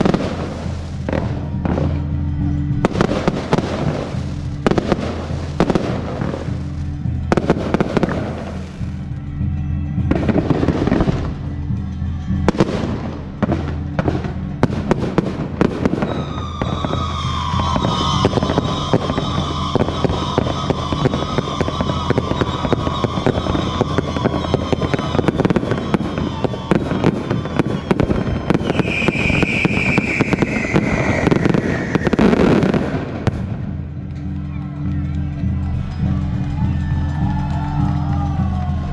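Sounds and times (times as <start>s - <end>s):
fireworks bangs and crackling: 0.0s - 38.9s
falling firework whistles: 15.6s - 33.3s.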